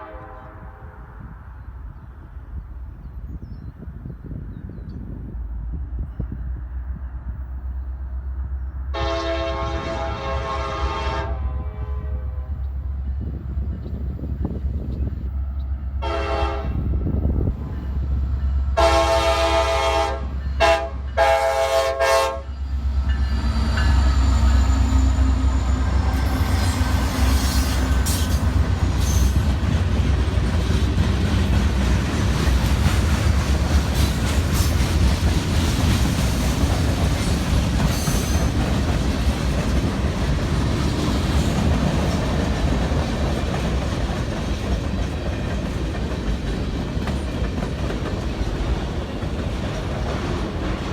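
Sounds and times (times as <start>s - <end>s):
locomotive air horn: 0.0s - 1.1s, 8.9s - 12.6s, 16.0s - 16.9s, 18.8s - 22.6s.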